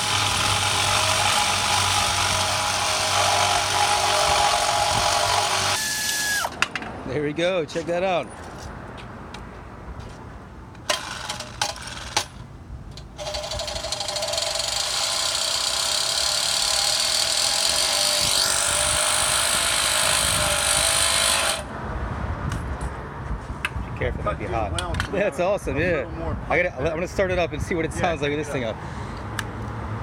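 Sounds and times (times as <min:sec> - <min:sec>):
power tool working metal: 0:00.0 - 0:06.5, 0:13.2 - 0:21.7.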